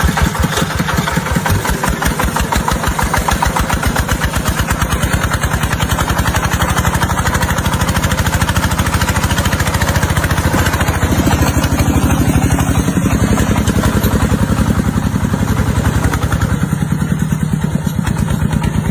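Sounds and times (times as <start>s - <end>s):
tractor engine chugging: 0.0s - 18.9s.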